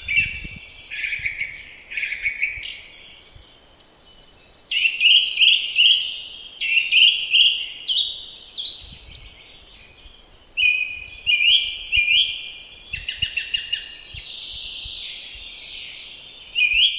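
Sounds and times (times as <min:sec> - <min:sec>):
songbirds singing: 0:00.0 - 0:16.9.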